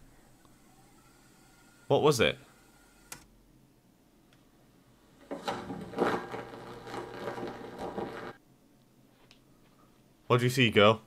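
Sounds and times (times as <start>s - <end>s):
vcr mechanical whirring: 0.1s - 3.3s, 5.1s - 8.4s.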